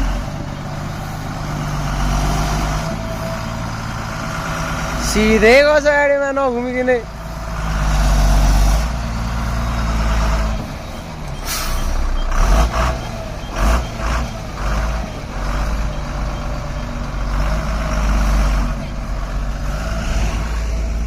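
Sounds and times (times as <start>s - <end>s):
truck engine under load: 0.0s - 21.0s
short air hisses: 11.4s - 12.1s.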